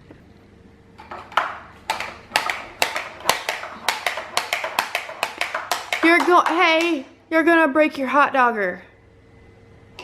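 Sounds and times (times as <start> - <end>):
baby banging a toy: 1.0 - 7.1.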